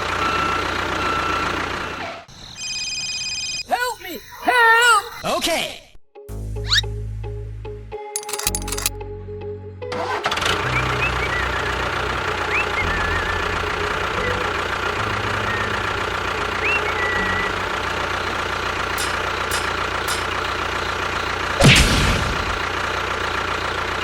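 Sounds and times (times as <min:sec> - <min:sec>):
tractor engine chugging: 0:10.0 - 0:24.0
short whistled chirps: 0:16.6 - 0:17.6.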